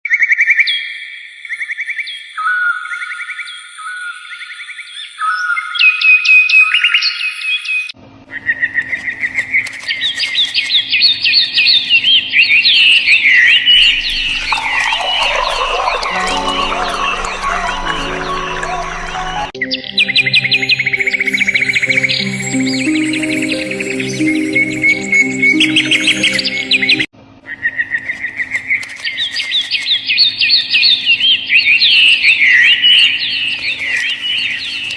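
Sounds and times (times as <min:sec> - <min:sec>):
soft background music: 0:16.1 - 0:27.1.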